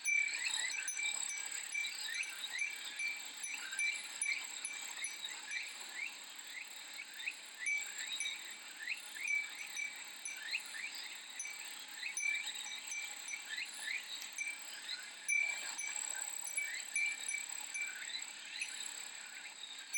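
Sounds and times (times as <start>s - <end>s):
insect chirps: 0.0s - 19.9s.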